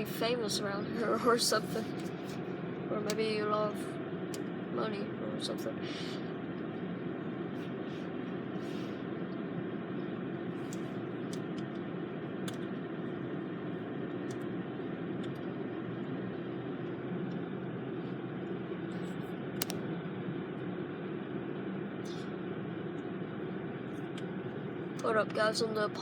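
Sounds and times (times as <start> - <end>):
clicks: 19.6 - 19.8.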